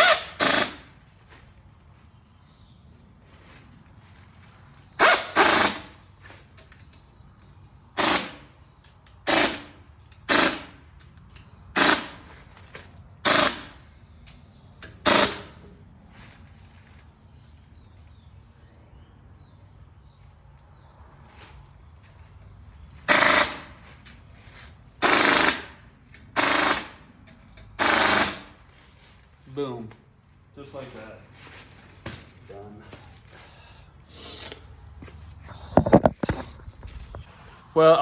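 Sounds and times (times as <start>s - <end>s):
impact wrench hammering: 9.3s - 10.8s, 11.8s - 12.2s, 25.0s - 25.8s, 26.4s - 27.0s, 27.6s - 28.5s.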